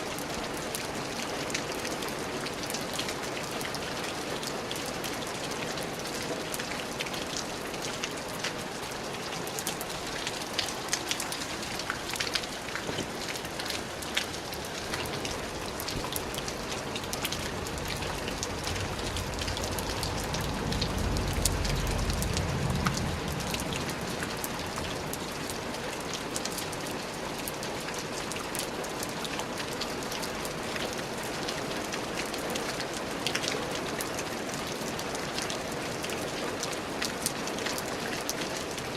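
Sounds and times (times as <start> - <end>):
steady rain falling: 0.0 - 38.9
raindrops ticking: 9.2 - 34.2
low rumble: 17.5 - 24.7.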